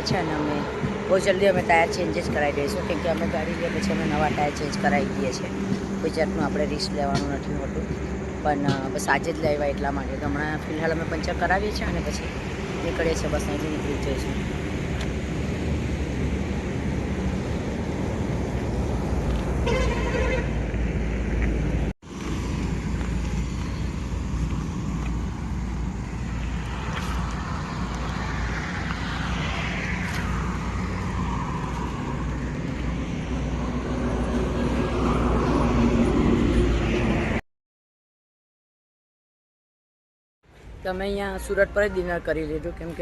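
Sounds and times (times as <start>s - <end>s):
traffic rumble: 0.0s - 37.4s, 40.5s - 43.0s
vehicle horn: 19.6s - 20.6s.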